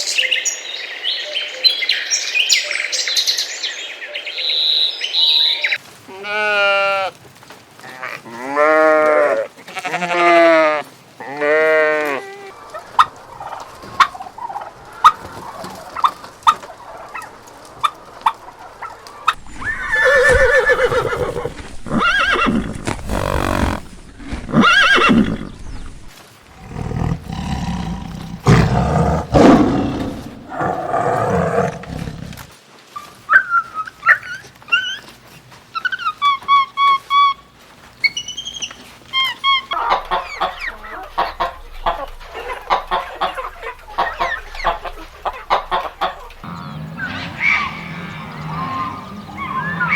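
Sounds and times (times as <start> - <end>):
wavering bleats: 7.8 - 12.5, 23.0 - 23.9
mixed animal calls: 18.8 - 28.0, 39.1 - 49.9.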